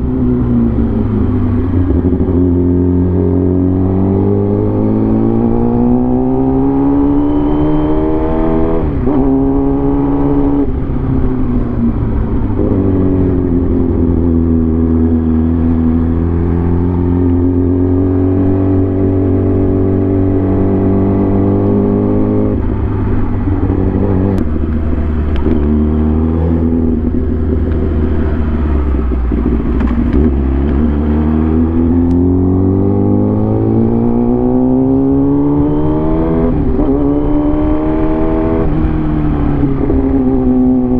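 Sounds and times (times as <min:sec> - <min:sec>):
motorcycle engine running: 0:08.9 - 0:35.8.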